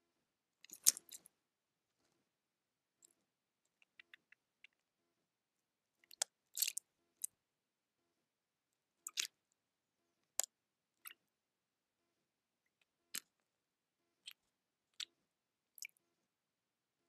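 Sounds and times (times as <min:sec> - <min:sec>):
birds pecking and cracking seed: 0:00.7 - 0:01.3.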